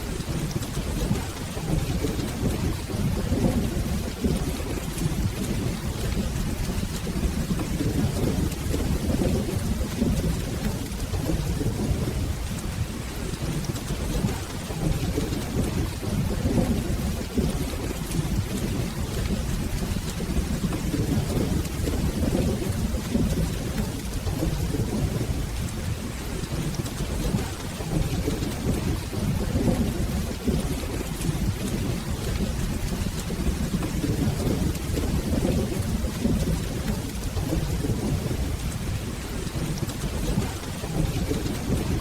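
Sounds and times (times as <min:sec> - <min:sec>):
rolling thunder: 0:00.0 - 0:42.0
steady rain: 0:00.0 - 0:42.0.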